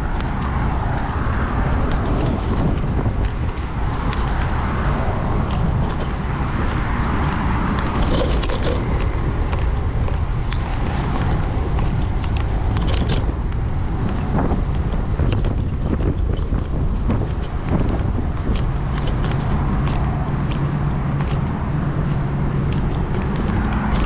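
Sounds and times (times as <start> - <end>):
road rumble: 0.0 - 24.0
wind rush: 0.0 - 24.0
small clicks and rattles: 0.1 - 24.0.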